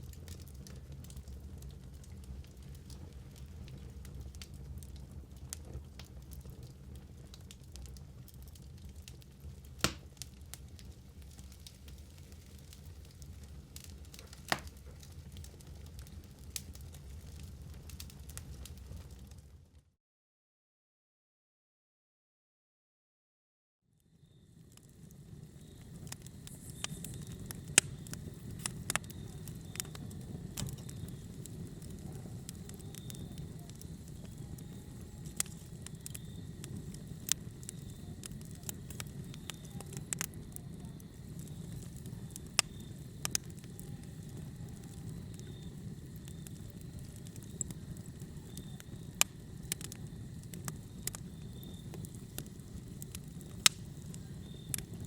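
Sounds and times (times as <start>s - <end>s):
fire crackling and popping: 0.0s - 19.8s, 24.0s - 55.0s
fire flames rumbling: 0.0s - 19.9s, 24.2s - 55.0s.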